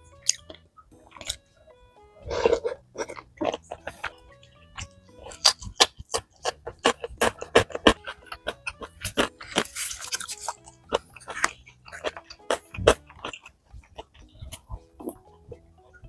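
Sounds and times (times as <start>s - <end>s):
quiet background music: 0.0s - 16.0s
wet chewing and mouth smacks: 0.2s - 15.9s.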